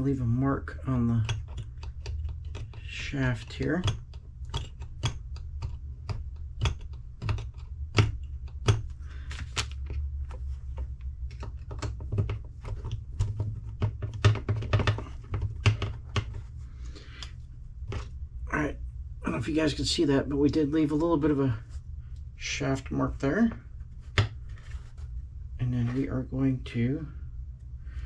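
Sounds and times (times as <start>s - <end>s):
steady low hum: 0.0s - 28.0s
small tools tapping metal shaft: 1.0s - 8.9s.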